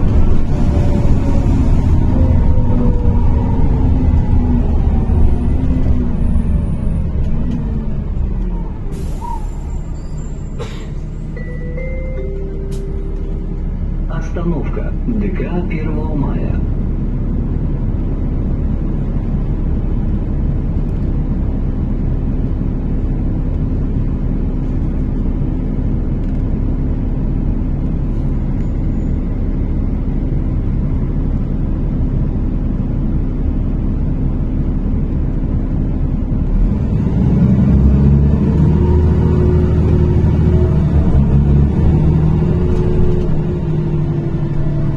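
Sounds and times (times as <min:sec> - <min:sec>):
low tones: 0:00.0 - 0:16.8
bus diesel engine rumbling: 0:00.0 - 0:44.9
road noise: 0:00.0 - 0:44.9.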